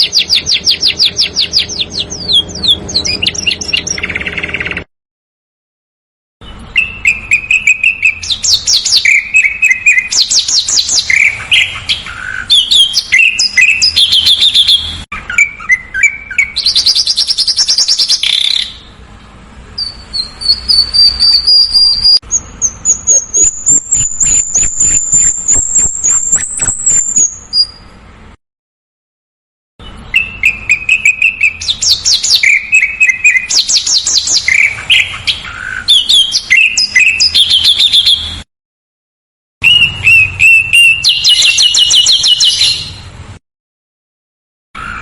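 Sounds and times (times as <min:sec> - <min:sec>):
rapid ticking bird notes: 0:00.0 - 0:04.9
songbird singing trills: 0:00.0 - 0:04.9, 0:06.4 - 0:19.0, 0:19.8 - 0:28.0, 0:29.8 - 0:38.4, 0:39.6 - 0:43.1.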